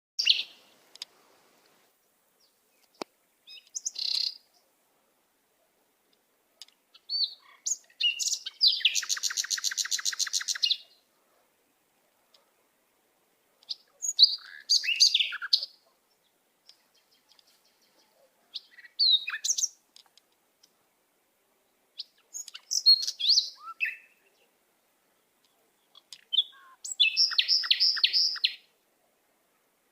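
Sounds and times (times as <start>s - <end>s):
songbird chirping and whistling: 0.2s - 0.7s, 2.4s - 4.5s, 6.9s - 11.0s, 13.6s - 15.8s, 16.7s - 19.8s, 22.0s - 24.5s, 25.4s - 28.7s.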